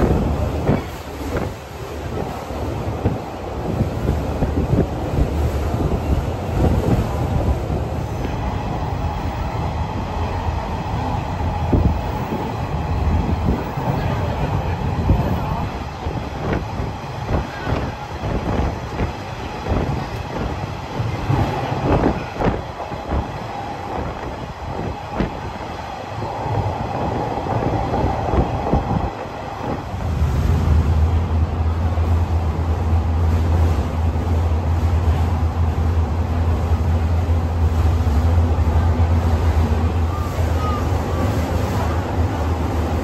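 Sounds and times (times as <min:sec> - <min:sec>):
train rumbling on track: 0:00.0 - 0:43.0
steady low hum: 0:26.1 - 0:43.0.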